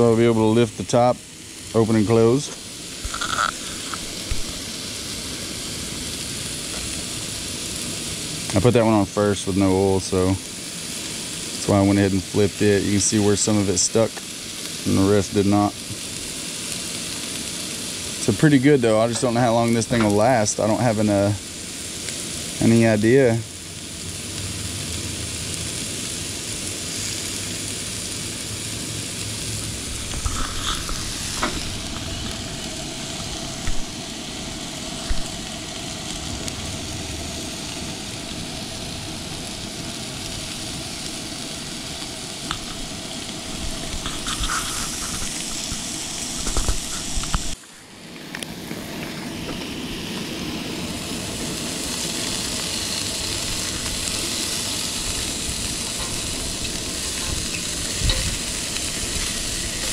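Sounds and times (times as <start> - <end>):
burger patties sizzling: 0.0 - 59.9.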